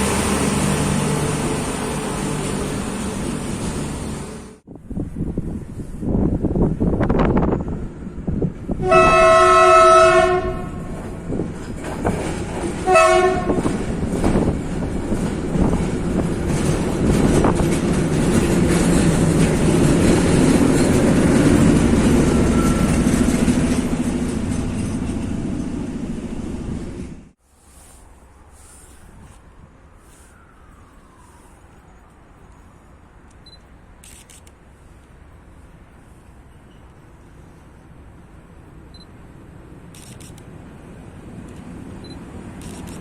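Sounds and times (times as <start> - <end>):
train wheels rumbling and clattering: 0.0 - 4.5, 10.6 - 27.4
locomotive horn blast: 8.8 - 11.0, 12.8 - 13.8.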